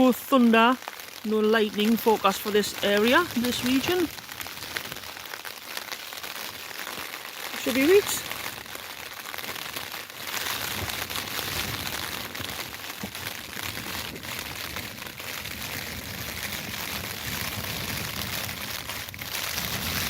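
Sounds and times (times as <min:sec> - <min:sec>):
rain on tent fabric: 0:00.0 - 0:20.0
gusty wind on microphone: 0:10.5 - 0:20.0.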